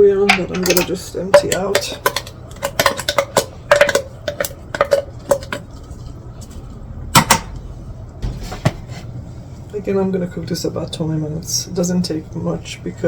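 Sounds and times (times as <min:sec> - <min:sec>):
utensil clinking against pot: 0:00.2 - 0:05.8.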